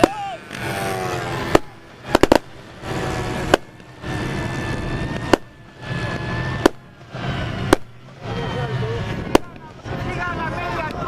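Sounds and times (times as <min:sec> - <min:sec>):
sharp loud bangs: 0:01.4 - 0:06.9, 0:07.6 - 0:08.0, 0:09.3 - 0:09.7.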